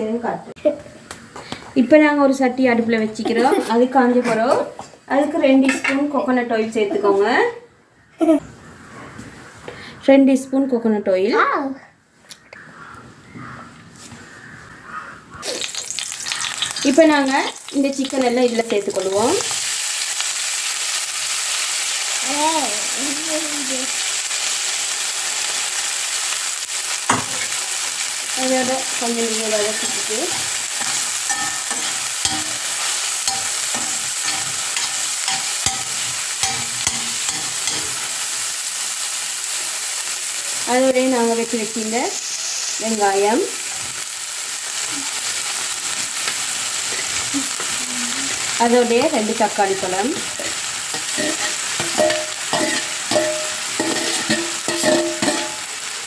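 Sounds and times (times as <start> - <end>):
chicken sizzling in a pan: 14.9 - 56.0
spoon scraping a pan: 28.6 - 38.2, 50.1 - 55.8.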